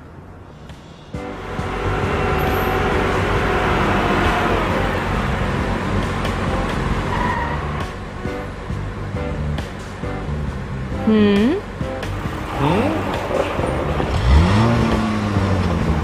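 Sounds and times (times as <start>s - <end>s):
heavy vehicle engine running: 0.0s - 16.0s.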